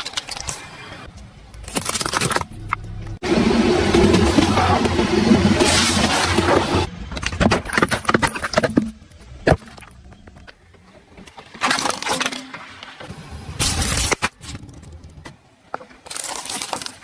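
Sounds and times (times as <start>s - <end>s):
objects crunching under car tyres: 1.4s - 10.6s.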